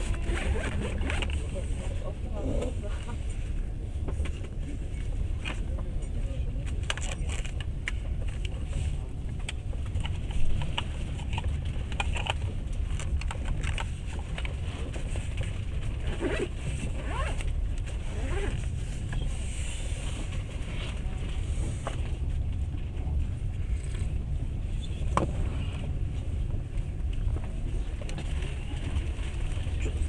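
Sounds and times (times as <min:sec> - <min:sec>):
train rumbling on track: 0:00.0 - 0:30.0
rattles and clicks: 0:06.6 - 0:16.2.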